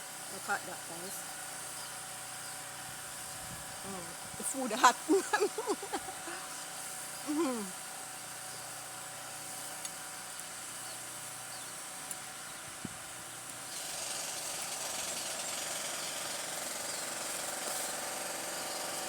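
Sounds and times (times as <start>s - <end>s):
jackhammer rattling: 13.7s - 19.0s.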